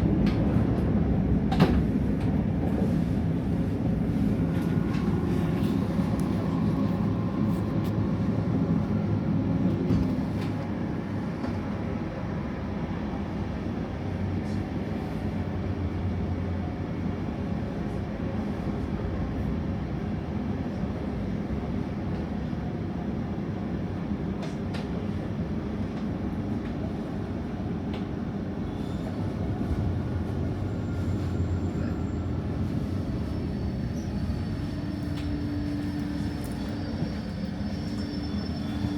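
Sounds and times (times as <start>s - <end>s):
train rumbling on track: 0.0s - 38.9s.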